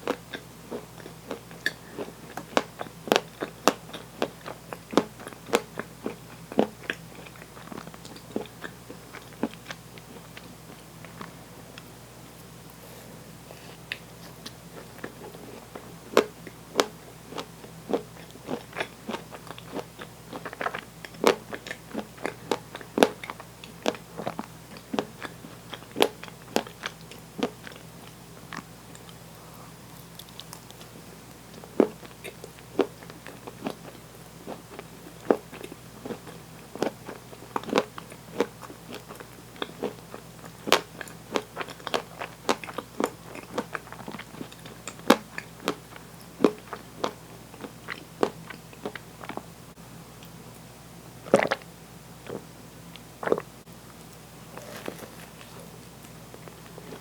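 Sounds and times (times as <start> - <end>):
crunchy bites and chewing: 13.9 - 29.2, 29.8 - 49.4, 53.2 - 57.0.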